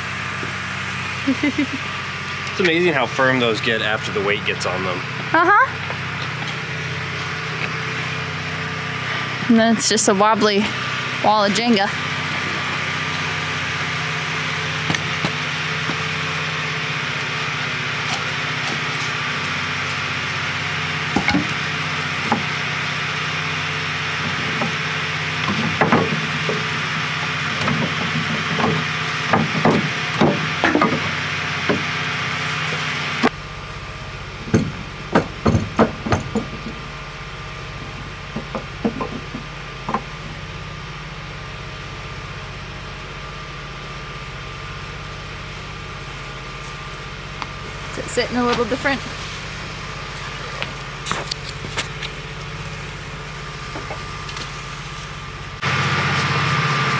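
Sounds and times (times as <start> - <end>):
machine hum: 0.0 - 56.9
hammer knocking on wood: 27.6 - 31.1, 34.5 - 36.8, 38.4 - 40.1.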